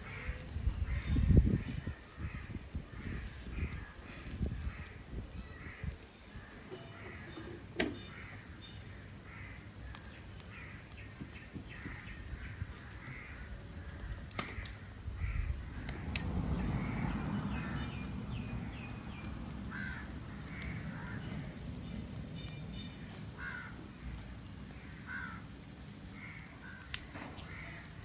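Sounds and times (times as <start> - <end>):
crows cawing: 0.0 - 16.0, 16.7 - 21.7, 23.0 - 28.0
low rumbling noise: 11.7 - 28.0.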